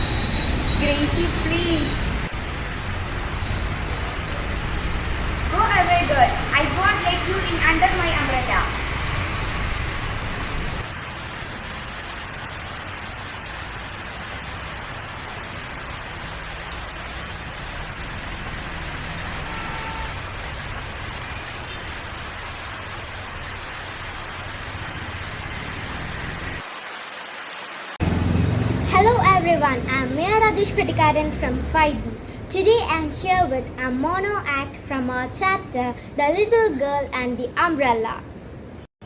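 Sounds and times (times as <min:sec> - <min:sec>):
heavy rain hiss: 0:00.9 - 0:32.5.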